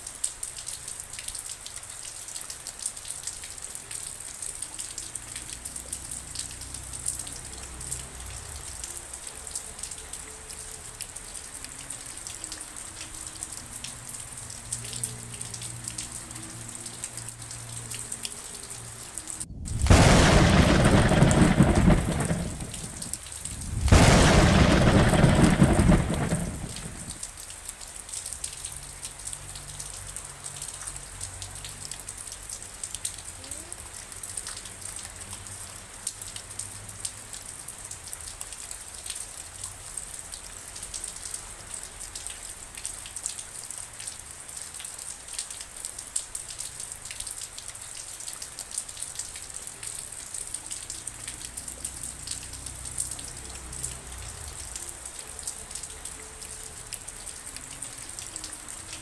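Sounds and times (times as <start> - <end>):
raindrops ticking: 0.0 - 59.0
steady rain: 0.0 - 59.0
thunder rolling: 19.3 - 27.2, 53.4 - 55.1.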